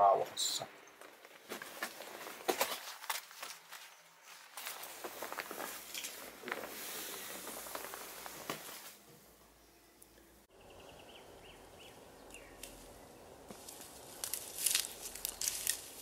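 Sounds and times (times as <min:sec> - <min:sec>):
footsteps crunching on rubble: 0:01.0 - 0:06.8, 0:13.5 - 0:16.0
small bird chirping: 0:09.5 - 0:13.4.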